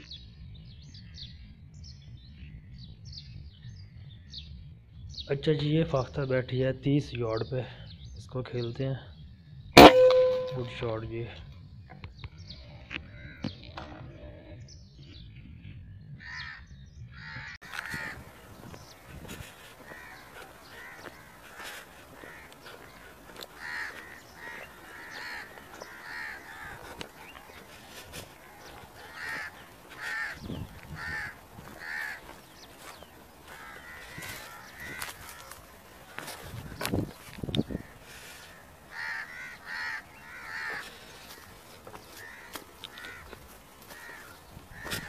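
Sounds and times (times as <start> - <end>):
birds harsh calls: 16.2 - 45.0.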